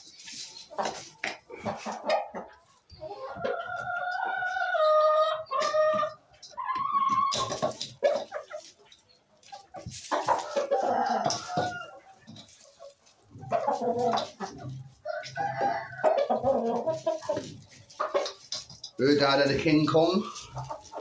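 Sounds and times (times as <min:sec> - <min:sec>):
chickens calling: 0:00.0 - 0:21.0
rooster crowing: 0:10.4 - 0:12.0, 0:15.0 - 0:16.3.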